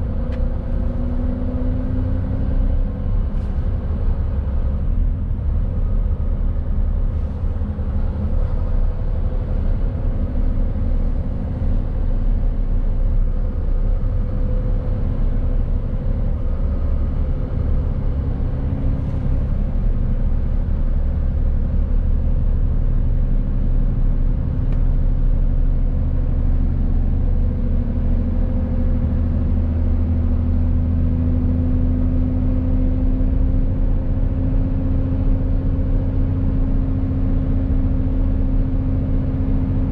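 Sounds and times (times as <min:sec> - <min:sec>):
road noise: 0:00.0 - 0:39.9
truck diesel engine running: 0:02.8 - 0:27.4.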